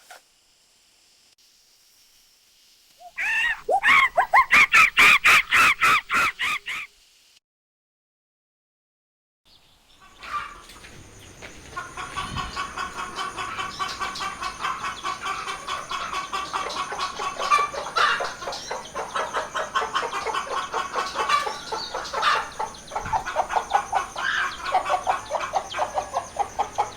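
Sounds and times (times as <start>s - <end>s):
chickens clucking: 3.1s - 6.9s, 10.0s - 26.9s.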